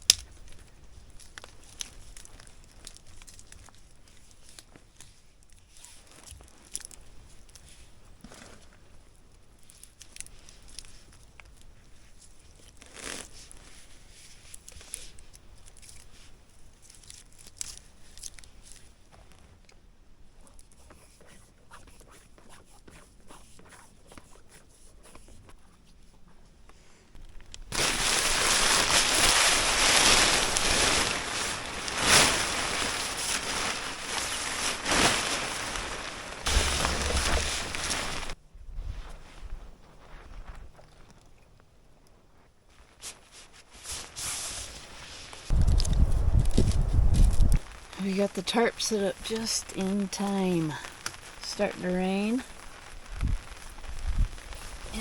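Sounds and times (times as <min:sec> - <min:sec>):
tarp crinkling and rustling: 0:00.0 - 0:19.7, 0:27.2 - 0:41.5, 0:42.4 - 0:55.0
loud steady hiss: 0:27.7 - 0:38.4, 0:43.8 - 0:55.0.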